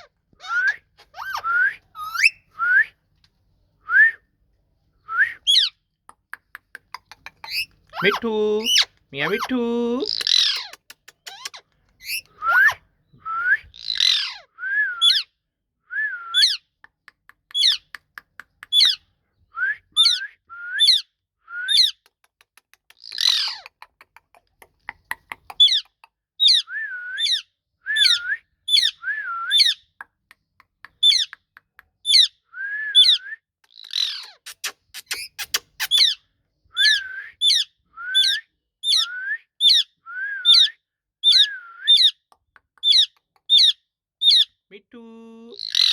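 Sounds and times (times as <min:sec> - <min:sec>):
parrot squawks: 0:00.0 - 0:02.4, 0:07.5 - 0:12.8, 0:13.8 - 0:15.2, 0:23.2 - 0:23.6, 0:33.9 - 0:36.2, 0:45.6 - 0:45.9
parrot whistles: 0:36.8 - 0:42.2.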